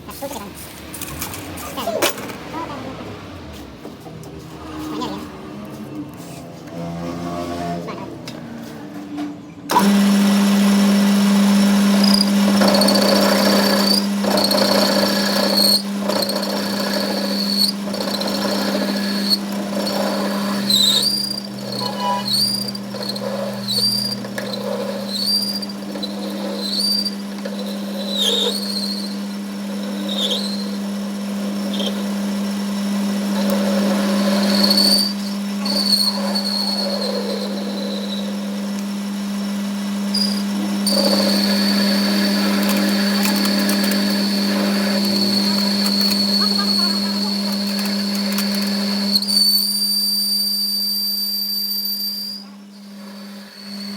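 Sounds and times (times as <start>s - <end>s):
workshop machine humming: 0.0s - 53.9s
short high squeals: 11.9s - 30.9s, 34.2s - 38.4s, 40.1s - 53.9s.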